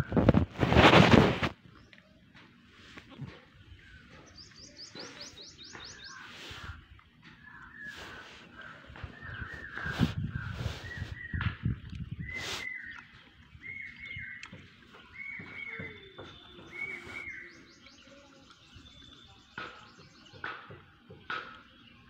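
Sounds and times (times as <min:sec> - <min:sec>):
bird calling: 0:03.3 - 0:20.6.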